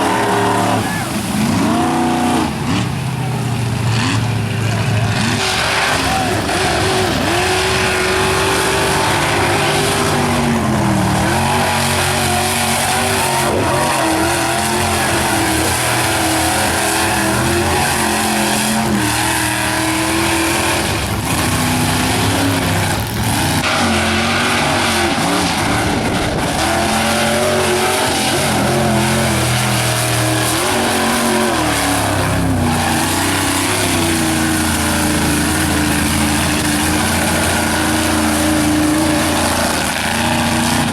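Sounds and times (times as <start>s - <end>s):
truck engines revving hard: 0.0s - 40.9s.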